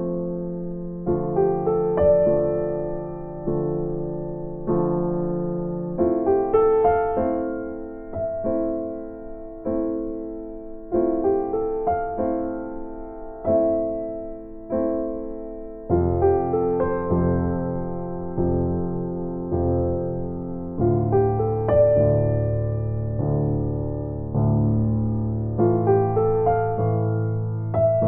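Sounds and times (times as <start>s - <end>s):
slow gentle piano chords: 0.0s - 28.0s.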